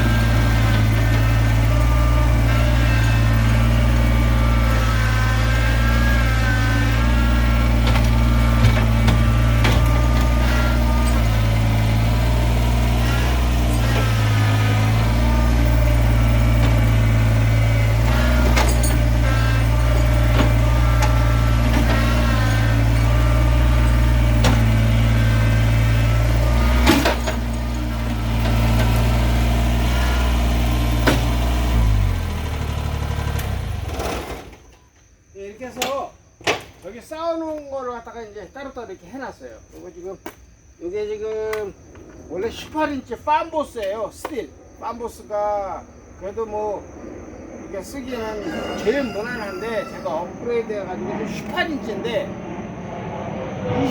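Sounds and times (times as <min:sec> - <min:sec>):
chainsaw idling: 0:00.0 - 0:34.5.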